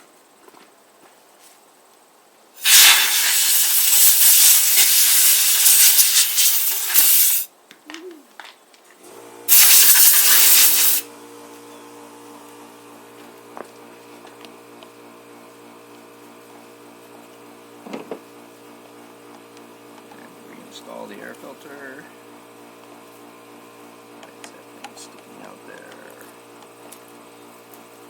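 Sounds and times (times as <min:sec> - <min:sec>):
compressed air blasts: 0:02.6 - 0:07.5, 0:09.5 - 0:11.1
electric hum: 0:09.0 - 0:28.0.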